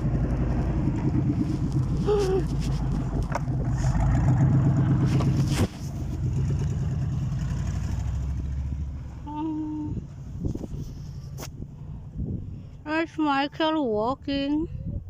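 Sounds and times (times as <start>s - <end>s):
snow plow engine running: 0.0s - 12.0s
sharp knocks or scrapes: 5.0s - 6.2s.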